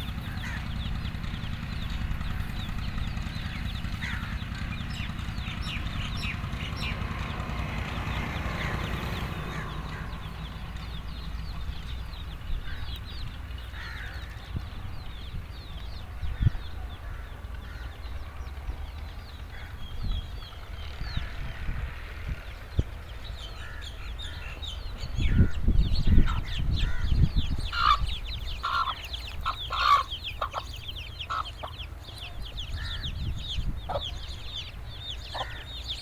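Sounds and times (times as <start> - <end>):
chicks peeping: 0.0 - 7.5, 24.1 - 36.0
hen clucking: 26.1 - 32.0, 33.0 - 36.0.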